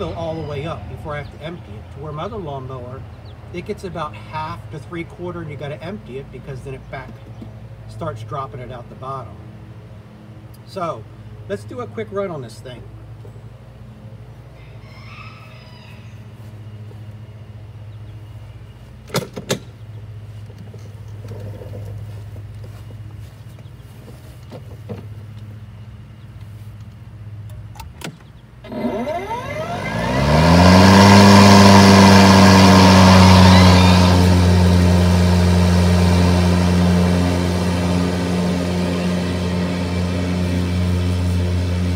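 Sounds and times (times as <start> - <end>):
electric lawnmower running: 28.6 - 41.9.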